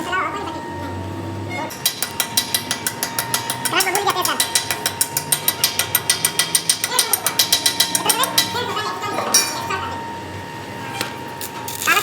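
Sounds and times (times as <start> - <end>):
rapid metallic ratchet clicking: 1.7 - 8.6.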